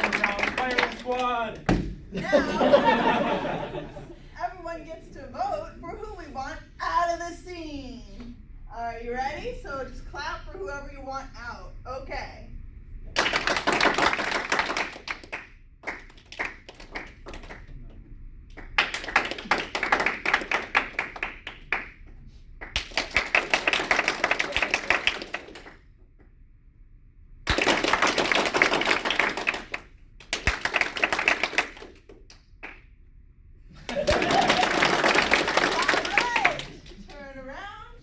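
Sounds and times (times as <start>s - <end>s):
audience clapping: 0.0s - 3.2s, 13.2s - 25.9s, 27.5s - 32.9s, 33.7s - 37.3s.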